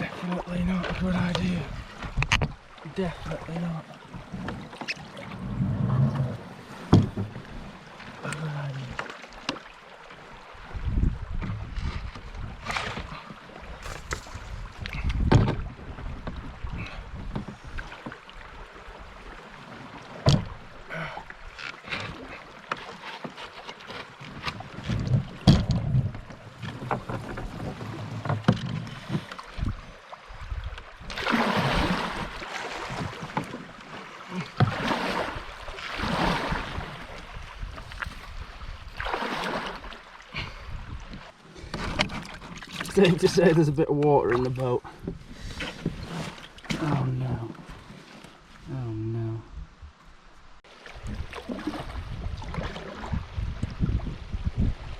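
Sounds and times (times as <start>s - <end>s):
water sloshing in boat: 0.0s - 54.9s
wind rumbling on microphone: 5.3s - 7.7s, 10.5s - 19.4s, 24.6s - 33.4s, 34.7s - 39.1s, 39.8s - 42.4s, 48.6s - 54.9s
knocks against boat hull: 6.9s - 7.4s, 15.2s - 15.6s, 20.2s - 20.5s, 24.8s - 26.2s.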